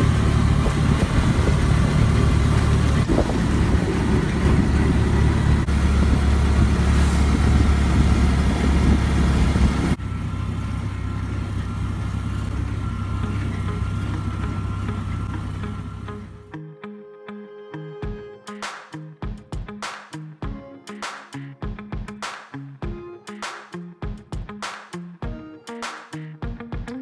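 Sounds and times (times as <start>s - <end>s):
motor vehicle rumbling: 0.0s - 16.5s.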